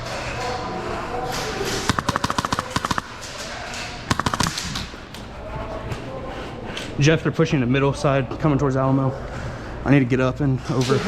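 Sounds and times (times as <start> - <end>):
airsoft gun full-auto bursts: 1.9 - 3.5, 4.1 - 5.4.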